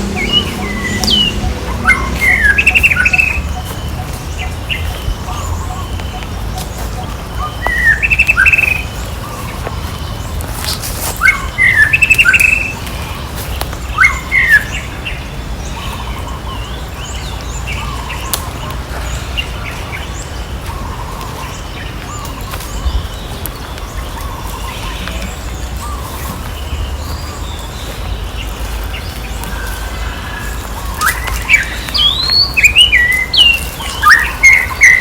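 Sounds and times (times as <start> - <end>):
low rumble: 0.0 - 7.5
shrill chirping calls: 0.0 - 10.4, 11.0 - 35.0.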